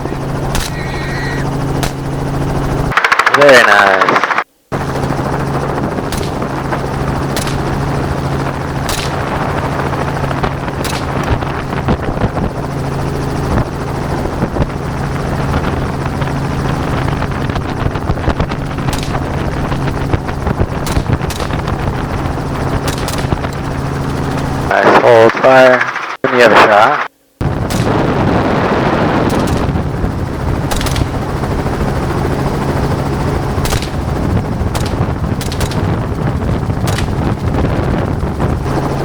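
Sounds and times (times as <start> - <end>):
helicopter engine and rotor drone: 0.0 - 39.0
gunshot cracks: 0.5 - 1.0, 1.8 - 2.0, 7.4 - 7.7, 8.9 - 9.2, 27.7 - 28.1, 30.7 - 31.1, 33.6 - 34.0.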